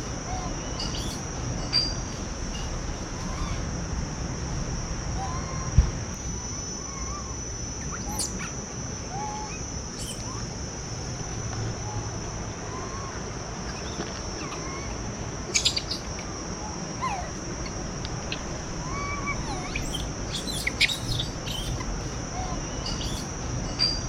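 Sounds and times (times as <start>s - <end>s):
birds whistling: 0.0s - 3.7s, 6.8s - 10.6s, 11.8s - 24.0s
high-pitched insect drone: 0.0s - 24.0s
sharp bird chirps: 0.3s - 2.0s, 7.8s - 10.5s, 12.8s - 24.0s.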